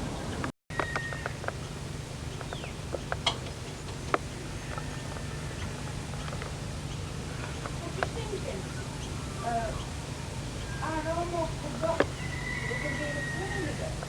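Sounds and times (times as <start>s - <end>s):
bird chirps: 0.0s - 14.0s
steady low hum: 0.0s - 14.0s
falling whistle: 0.7s - 1.4s.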